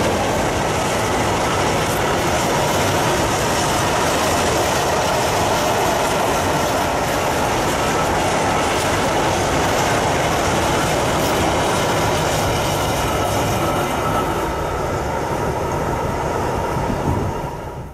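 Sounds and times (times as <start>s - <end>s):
freight train wagons rumbling: 0.0s - 17.9s.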